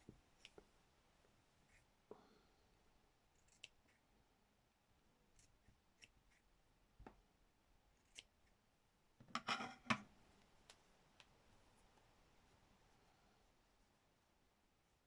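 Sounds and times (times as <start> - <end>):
small scissors snipping thread: 3.3 - 4.0, 8.0 - 8.4.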